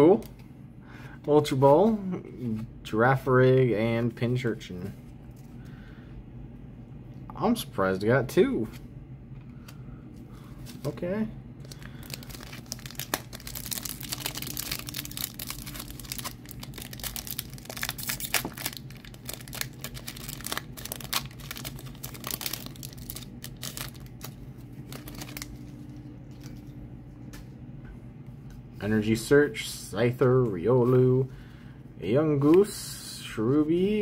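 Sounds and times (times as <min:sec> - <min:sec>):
foil wrapper crinkling: 0:11.6 - 0:26.7.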